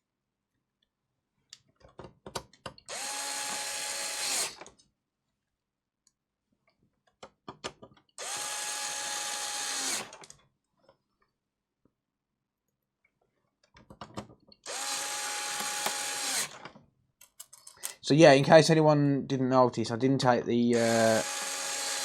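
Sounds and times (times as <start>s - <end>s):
electric screwdriver running: 2.9s - 4.6s, 8.2s - 10.3s, 14.6s - 16.6s, 20.7s - 22.0s
clicks and taps of screws handled: 17.2s - 18.0s.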